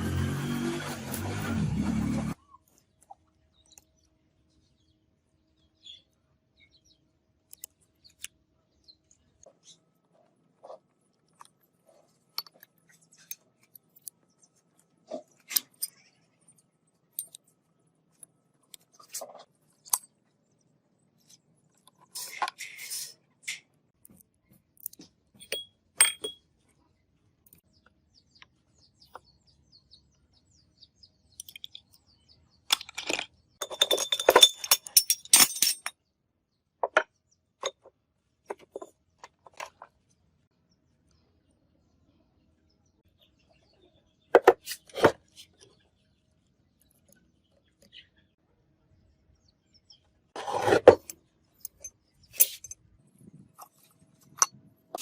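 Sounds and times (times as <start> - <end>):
small metal parts clinking: 24.8 - 26.4, 31.4 - 32.0, 32.7 - 36.0, 50.4 - 52.9
metal scraping: 50.4 - 51.1.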